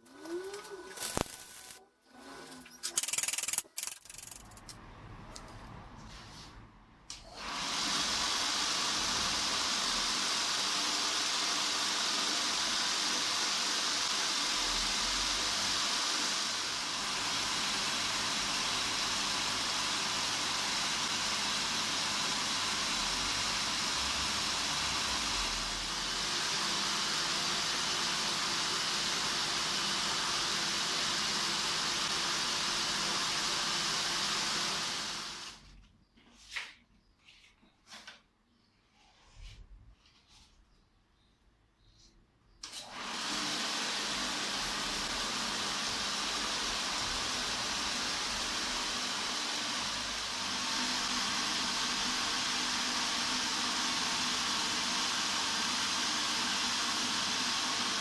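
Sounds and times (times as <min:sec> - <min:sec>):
belt grinder hissing: 0:07.4 - 0:35.6, 0:42.6 - 0:58.0.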